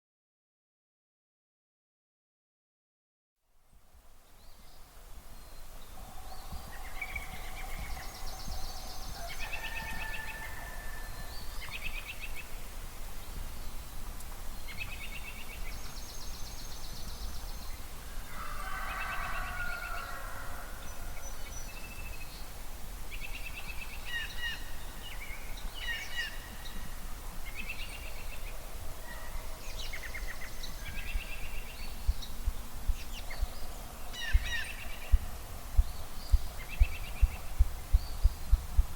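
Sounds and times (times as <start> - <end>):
songbirds singing trills: 4.2 - 38.9
rooster crowing: 8.7 - 11.3, 18.3 - 20.9
grouse drumming low thumping: 34.4 - 38.9.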